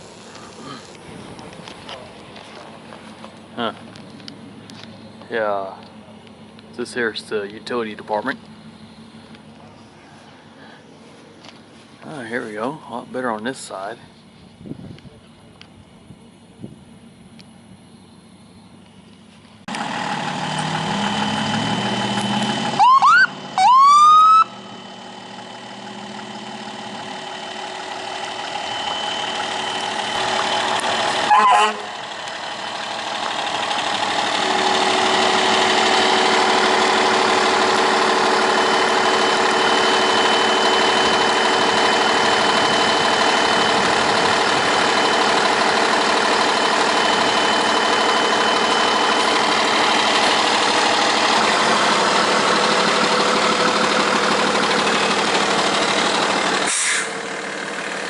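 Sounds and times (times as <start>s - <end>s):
fire truck engine running: 0.0s - 58.0s
loud steady drone: 19.8s - 58.0s
rising siren whoops: 20.9s - 24.6s.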